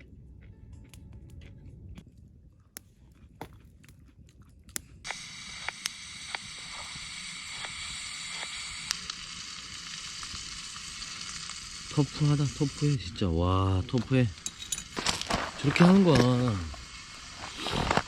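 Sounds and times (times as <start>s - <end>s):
food sizzling in a hot pan: 5.1s - 18.0s.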